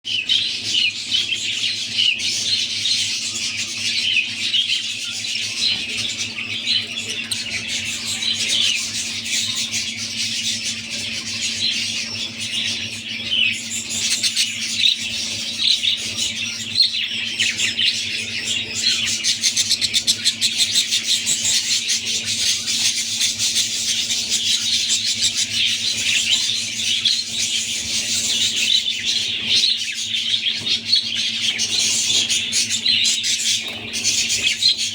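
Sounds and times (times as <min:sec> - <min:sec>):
budgerigars chattering and squawking: 0:00.1 - 0:34.9.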